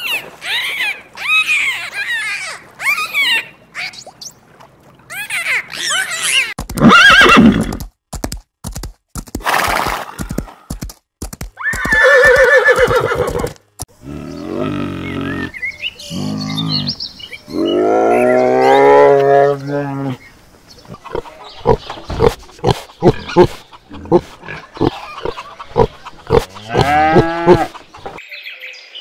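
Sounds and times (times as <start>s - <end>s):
horse whinnying: 6.8s - 7.8s, 11.6s - 13.6s.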